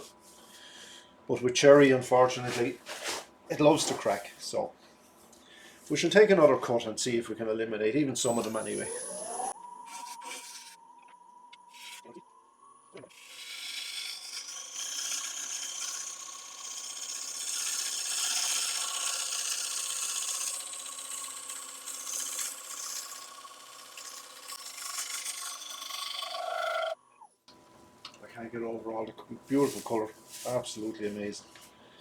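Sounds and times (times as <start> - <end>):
faint lathe hum: 0.0 - 32.0
gouge cutting wood on lathe: 13.1 - 27.0.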